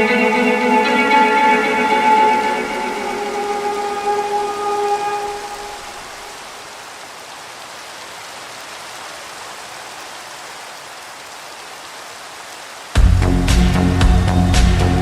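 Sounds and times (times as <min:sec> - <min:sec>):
music chord reverb tail: 0:00.0 - 0:06.0
steady rain falling: 0:00.0 - 0:15.0.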